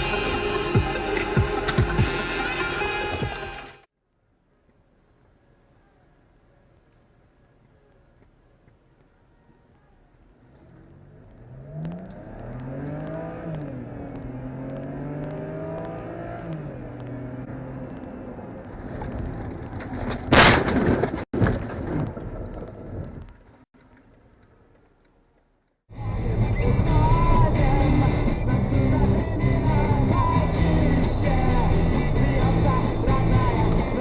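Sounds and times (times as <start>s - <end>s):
music: 0.0s - 3.9s, 25.9s - 34.0s
car engine accelerating: 10.4s - 19.8s, 25.9s - 34.0s.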